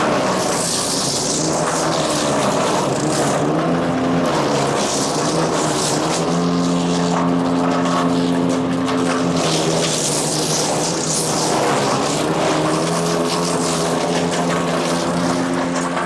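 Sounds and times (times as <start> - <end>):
wood chipper engine running: 0.0 - 16.0.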